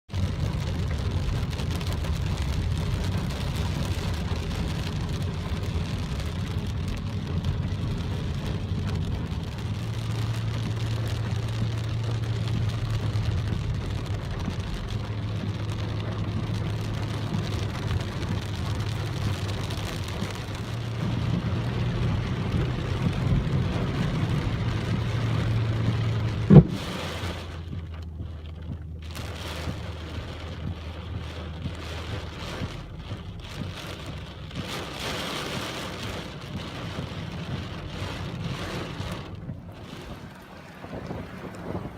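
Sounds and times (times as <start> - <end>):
steady rain: 0.0 - 41.9
low rumble: 0.1 - 41.9.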